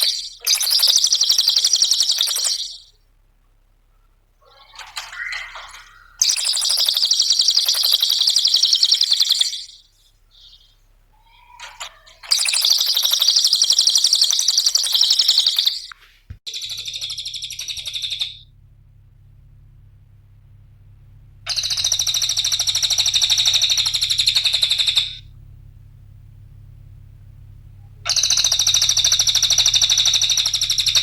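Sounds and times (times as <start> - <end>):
songbird calls and trills: 0.0 - 3.0, 4.4 - 18.4, 21.5 - 25.2, 28.1 - 31.0.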